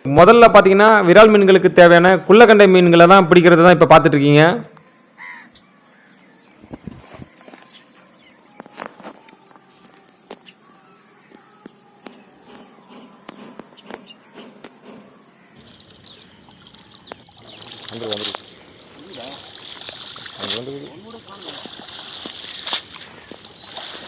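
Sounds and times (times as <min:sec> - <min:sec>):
high-pitched insect buzzing: 0:04.8 - 0:24.0
small water sounds: 0:15.6 - 0:24.0.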